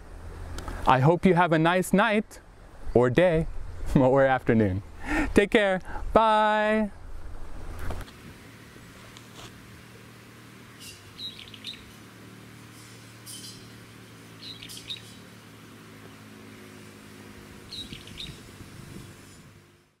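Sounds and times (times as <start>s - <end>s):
small birds chirping: 8.4s - 19.9s.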